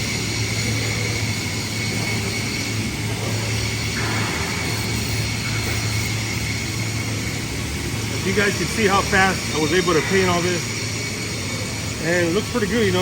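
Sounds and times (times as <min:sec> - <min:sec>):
motor running with whine: 0:00.0 - 0:13.0.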